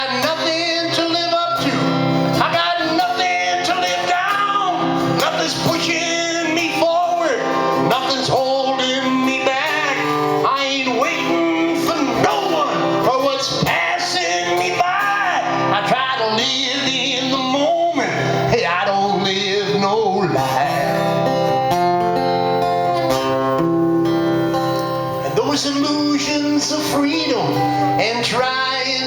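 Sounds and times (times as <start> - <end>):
man singing: 0.0 - 23.3, 25.0 - 29.0
guitar playing: 0.0 - 29.0.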